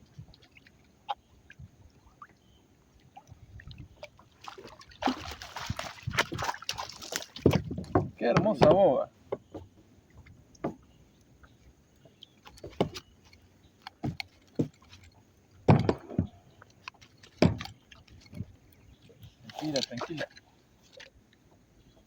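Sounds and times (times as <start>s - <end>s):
fish thumping on a kayak: 3.8s - 11.0s, 12.3s - 21.1s.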